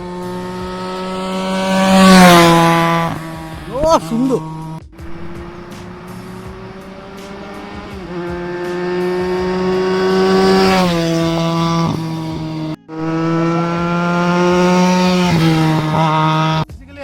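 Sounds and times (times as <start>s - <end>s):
motorcycle passing by: 0.0s - 16.6s.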